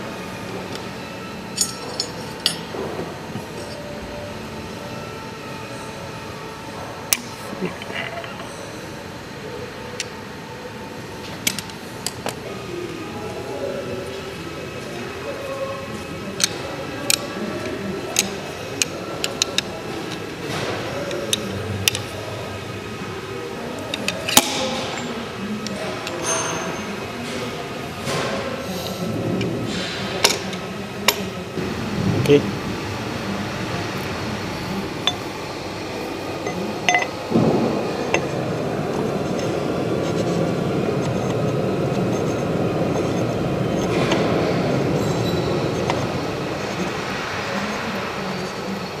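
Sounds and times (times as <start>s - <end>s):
low background hum: 0.0s - 49.0s
steady mechanical running noise: 0.0s - 49.0s
metallic clicks and clinks: 1.6s - 2.7s.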